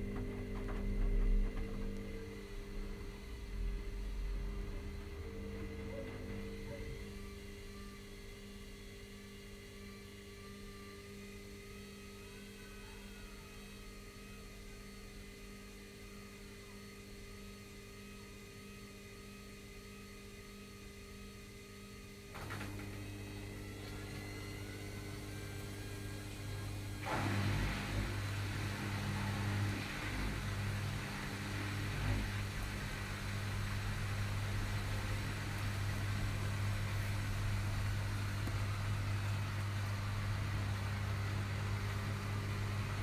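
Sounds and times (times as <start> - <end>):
drum motor low rumble: 0.0 - 8.7, 22.7 - 43.0
washing machine motor hum: 0.0 - 43.0.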